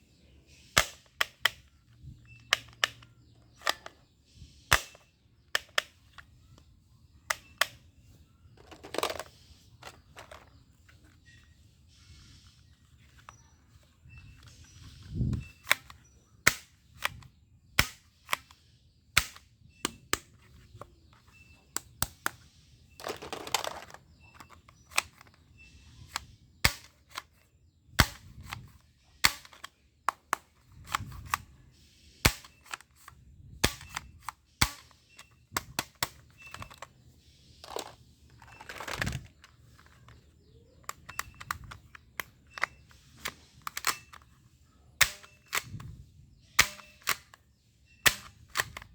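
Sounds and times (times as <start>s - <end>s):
airsoft pistol snaps: 0.8s - 1.6s, 4.7s - 5.9s, 15.4s - 18.6s, 19.2s - 20.3s, 26.0s - 27.2s, 27.9s - 31.4s, 32.2s - 32.8s, 33.6s - 36.8s, 45.0s - 47.4s, 48.0s - 48.9s.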